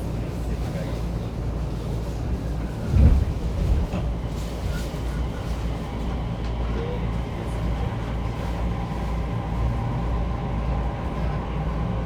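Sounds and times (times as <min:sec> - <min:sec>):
train car rumble and hum: 0:00.0 - 0:12.0.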